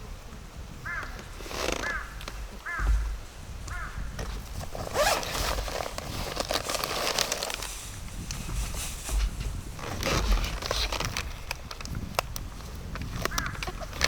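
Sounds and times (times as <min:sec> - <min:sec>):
camping gear rustling and clicking: 0:00.3 - 0:14.0
crow cawing: 0:00.8 - 0:03.1, 0:03.7 - 0:04.1, 0:13.3 - 0:13.8.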